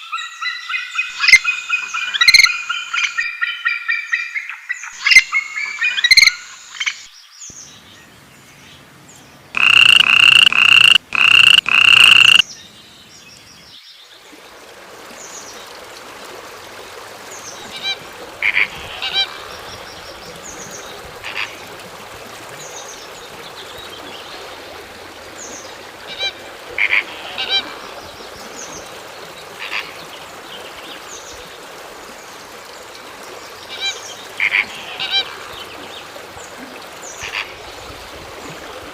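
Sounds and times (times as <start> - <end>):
harsh animal calls: 9.6 - 12.4
short honking calls: 9.6 - 12.4.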